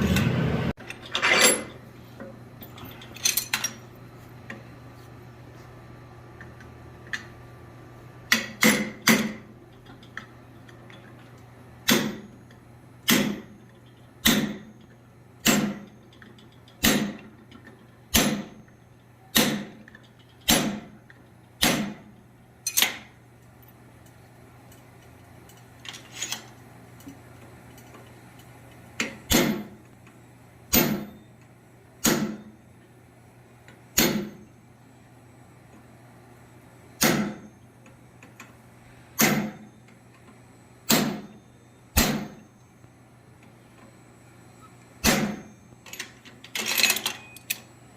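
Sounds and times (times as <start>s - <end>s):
low hum: 0.0s - 4.9s
hammer striking steel on anvil: 8.3s - 9.4s, 13.0s - 13.5s, 14.2s - 14.7s, 15.4s - 15.9s, 16.8s - 17.2s, 18.1s - 18.6s, 19.3s - 19.8s, 20.5s - 20.9s, 21.6s - 22.0s, 29.0s - 29.7s, 30.7s - 31.2s, 32.0s - 32.5s, 34.0s - 34.4s, 37.0s - 37.4s, 39.2s - 39.6s, 40.9s - 41.4s, 42.0s - 42.4s, 45.0s - 45.5s.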